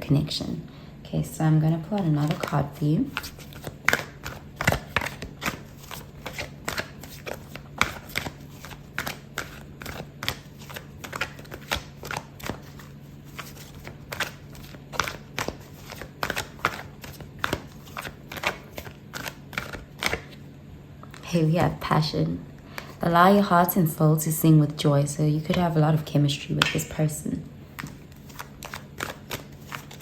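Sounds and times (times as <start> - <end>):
faint low hum: 0.0 - 30.0
cards being shuffled: 1.8 - 20.4, 27.7 - 30.0.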